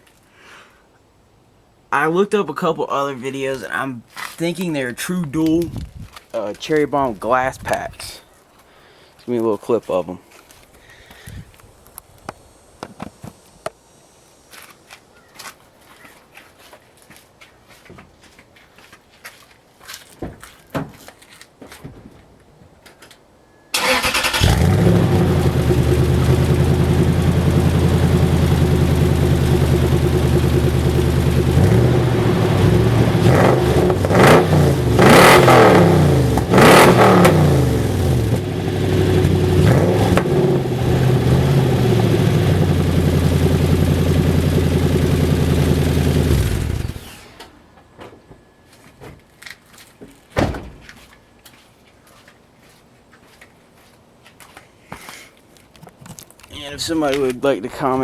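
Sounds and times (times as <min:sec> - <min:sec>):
truck engine starting: 0:23.7 - 0:47.7
truck engine revving: 0:23.8 - 0:47.4
truck engine shutting off: 0:23.8 - 0:47.7
truck engine idling: 0:24.4 - 0:35.2, 0:35.8 - 0:47.2.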